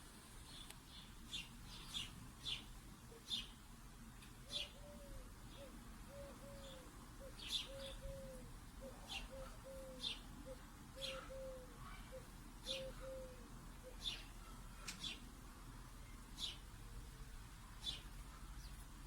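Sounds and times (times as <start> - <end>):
small birds chirping: 0.3 - 19.0
dove cooing: 4.4 - 14.3.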